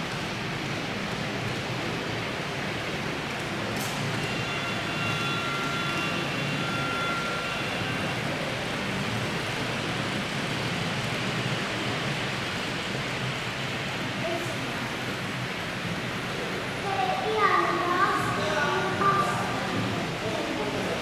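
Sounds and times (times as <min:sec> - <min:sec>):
exhibition hall background noise: 0:00.6 - 0:21.0
thin high whines: 0:04.3 - 0:08.6.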